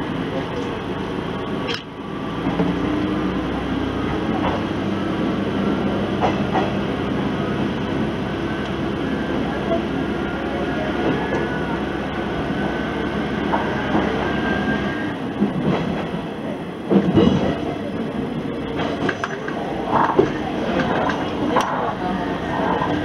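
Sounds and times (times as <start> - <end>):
diesel railcar engine rumble: 0.0 - 23.0
wheels clattering over rail joints: 15.3 - 23.0.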